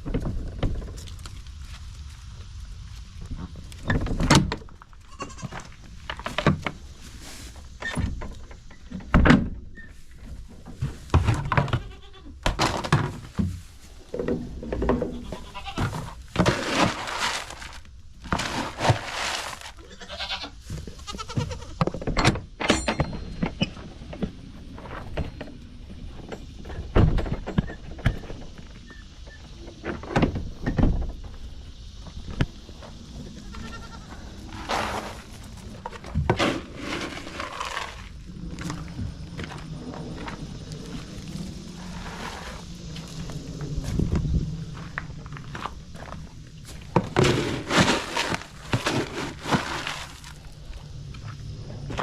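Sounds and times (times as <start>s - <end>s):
goats bleating: 15.1s - 15.9s, 19.8s - 21.7s, 33.4s - 34.2s.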